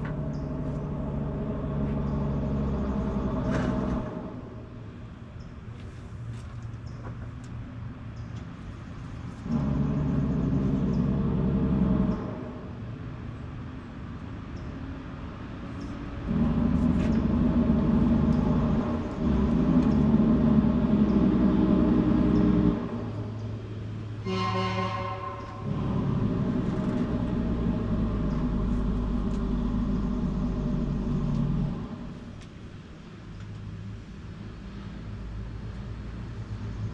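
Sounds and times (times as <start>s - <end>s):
loud motor running: 0.0s - 4.6s, 9.4s - 12.8s, 16.3s - 23.3s, 25.4s - 32.4s
steady engine hum: 0.0s - 36.9s.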